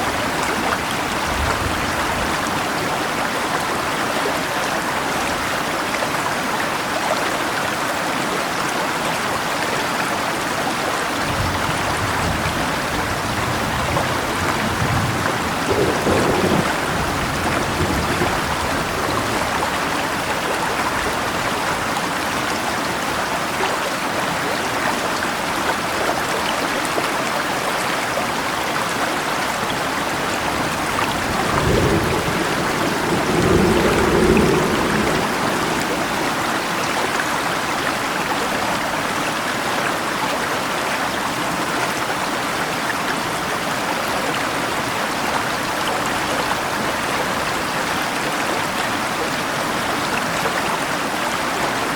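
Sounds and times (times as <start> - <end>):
flowing river: 0.0 - 51.9
steady rain: 0.0 - 51.9
thunder rumbling: 11.3 - 21.6, 30.1 - 37.8.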